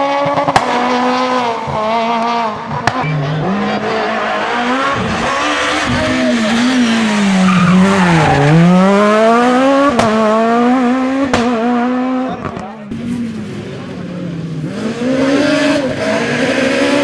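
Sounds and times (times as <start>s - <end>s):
rally car engine revving: 0.0s - 17.0s
sharp cracks at gear changes: 3.0s - 12.7s.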